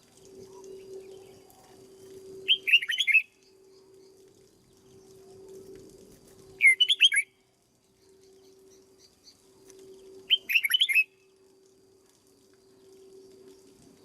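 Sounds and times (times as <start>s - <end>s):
bird warbling song: 0.2s - 5.6s, 6.5s - 11.3s.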